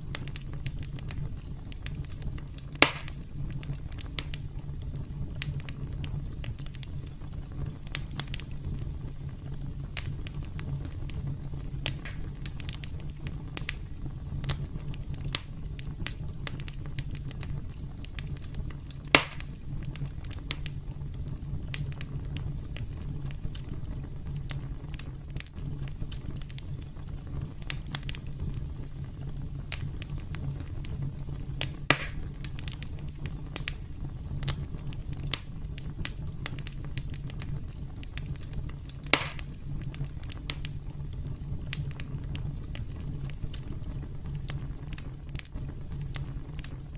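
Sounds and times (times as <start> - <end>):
campfire crackling: 0.0 - 46.9
loud fire pops: 0.0 - 46.9.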